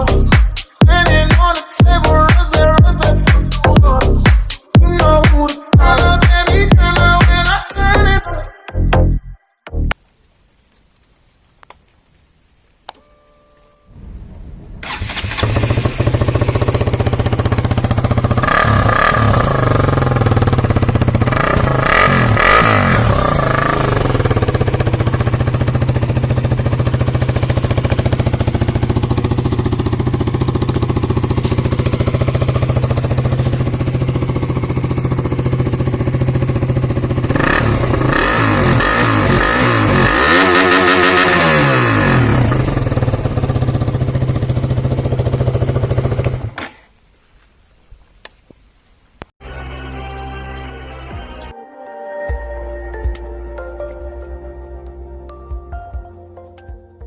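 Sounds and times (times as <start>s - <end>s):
motorcycle engine idling and revving: 0.0s - 8.2s, 14.8s - 46.8s.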